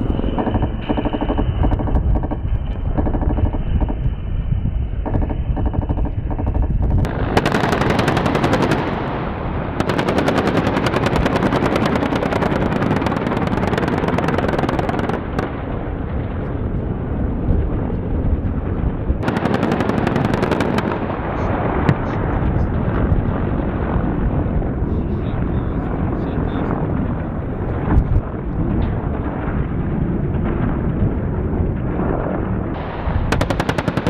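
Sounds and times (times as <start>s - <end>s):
helicopter running: 0.0s - 34.0s
automatic gunfire: 5.0s - 9.0s, 9.8s - 15.4s, 19.2s - 21.1s, 33.2s - 34.0s.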